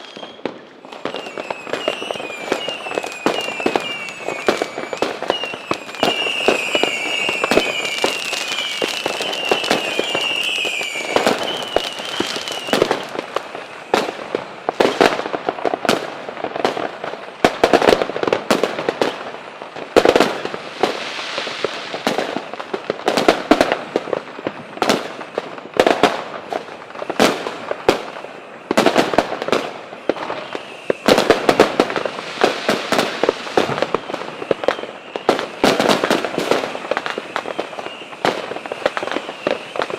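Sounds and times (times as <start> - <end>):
high-pitched whistle: 0.0 - 13.1, 33.6 - 35.6, 37.0 - 39.9
fireworks cracks and bangs: 0.0 - 39.9.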